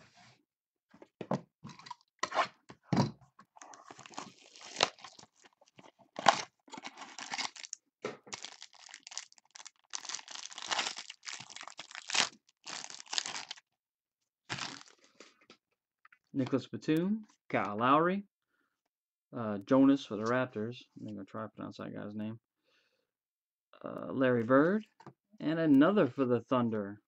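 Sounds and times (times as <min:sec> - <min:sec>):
wrapper tearing and crinkling: 0:03.7 - 0:13.6, 0:14.5 - 0:15.1.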